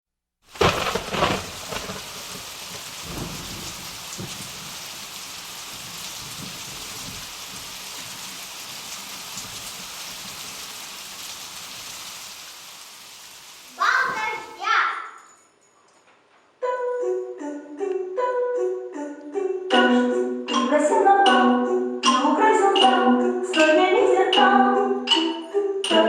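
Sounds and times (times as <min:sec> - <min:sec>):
steady rain falling: 0:00.4 - 0:14.8
thunder rumbles: 0:00.5 - 0:08.4.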